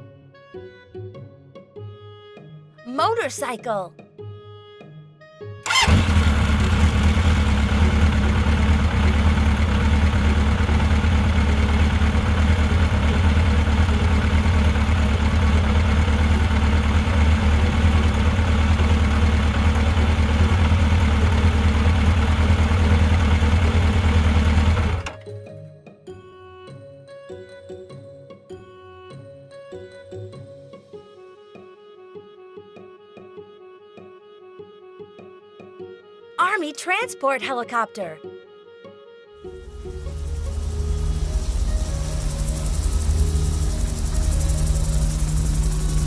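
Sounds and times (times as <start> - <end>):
motorcycle engine idling: 5.7 - 25.2, 39.4 - 46.0.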